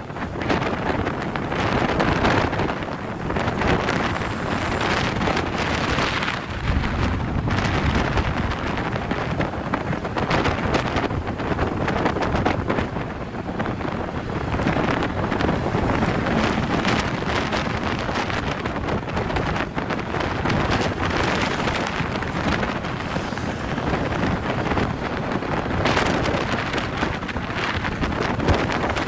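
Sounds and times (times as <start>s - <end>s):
vehicle road noise: 0.0s - 29.0s
wind buffeting microphone: 0.0s - 29.0s.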